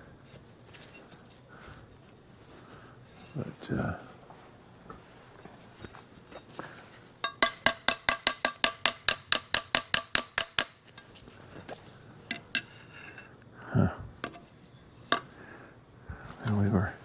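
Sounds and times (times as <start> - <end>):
metal-on-metal taps ringing: 7.2 - 10.8.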